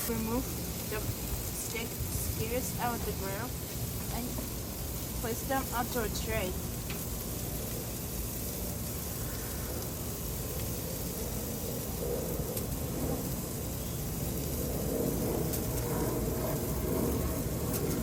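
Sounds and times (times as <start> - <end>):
low rumble: 0.0 - 18.0
steak sizzling on grill: 0.0 - 18.0.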